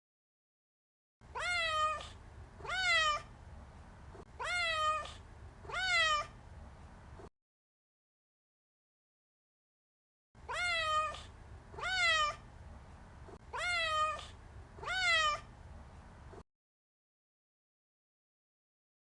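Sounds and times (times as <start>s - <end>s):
cat meowing: 1.3s - 3.3s, 4.4s - 6.4s, 10.4s - 12.4s, 13.5s - 15.5s
low background hiss: 1.3s - 7.3s, 10.4s - 16.4s.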